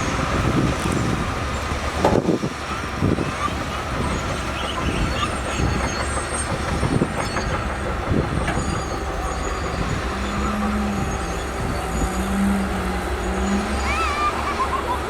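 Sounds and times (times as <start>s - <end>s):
bulldozer diesel engine running: 0.0s - 15.0s
faint high metallic squeals: 4.2s - 14.4s.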